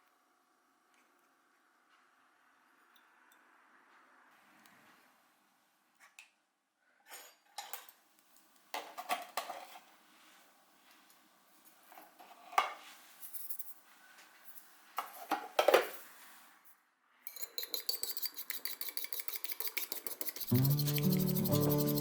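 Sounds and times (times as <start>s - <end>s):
utensil beating in a bowl: 17.3s - 22.0s
utensils clinking on dishes: 17.3s - 22.0s
music: 20.5s - 22.0s.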